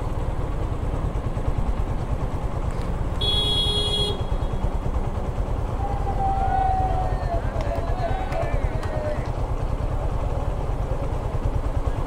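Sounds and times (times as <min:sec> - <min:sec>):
motorcycle engine rumbling: 0:00.0 - 0:12.0
horn sounding: 0:03.2 - 0:04.8.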